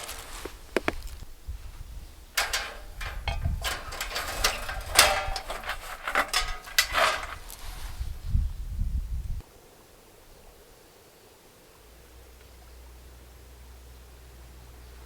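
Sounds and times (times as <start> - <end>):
wood and metal clattering: 2.3 - 7.9.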